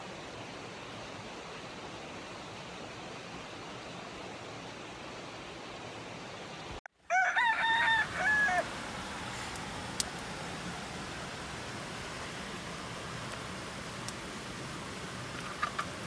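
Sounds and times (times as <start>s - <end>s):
rooster crowing: 7.1s - 9.7s
steady hiss: 7.7s - 16.0s.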